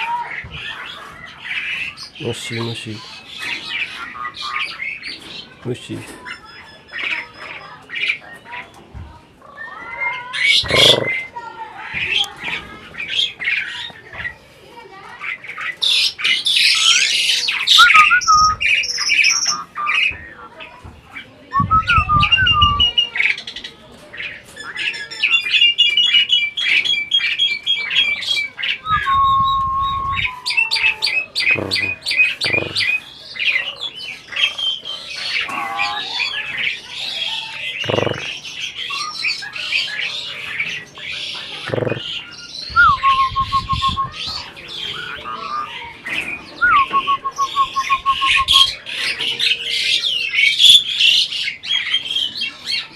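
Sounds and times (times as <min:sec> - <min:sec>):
myna calling: 0:10.2 - 0:11.4, 0:27.9 - 0:34.4, 0:35.1 - 0:40.0, 0:41.1 - 0:45.8.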